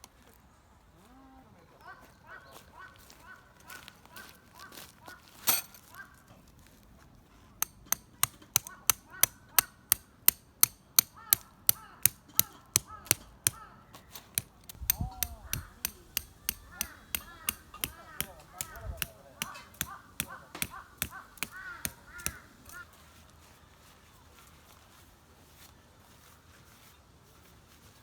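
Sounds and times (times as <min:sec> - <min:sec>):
sharp knocks: 0:14.4 - 0:22.8.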